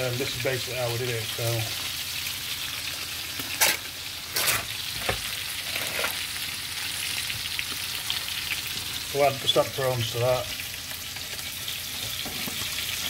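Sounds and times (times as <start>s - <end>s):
fish frying in oil: 0.0s - 13.0s.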